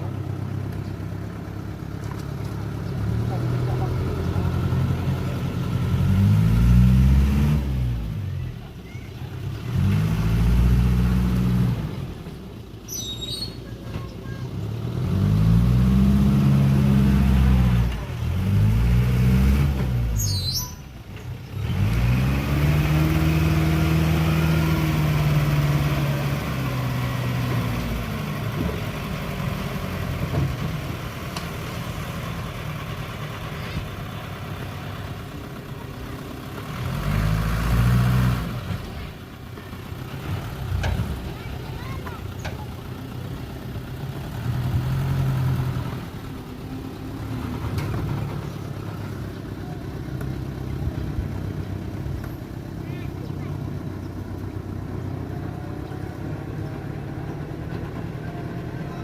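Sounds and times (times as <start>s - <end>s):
heavy diesel engine revving: 0.0s - 13.5s, 14.2s - 59.0s
high squeals: 12.8s - 13.8s, 20.2s - 20.9s.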